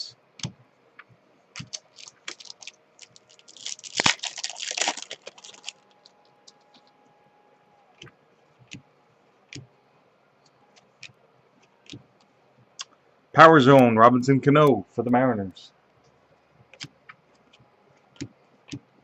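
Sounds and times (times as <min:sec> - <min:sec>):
wrappers crinkling: 0:01.6 - 0:06.8.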